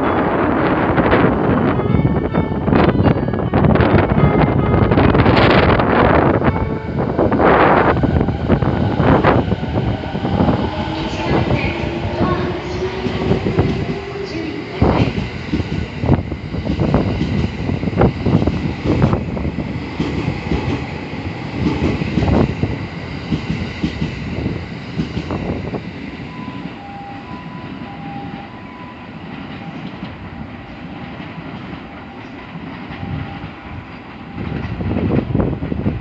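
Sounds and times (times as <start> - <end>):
train wheels clattering over rails: 7.9 - 26.7.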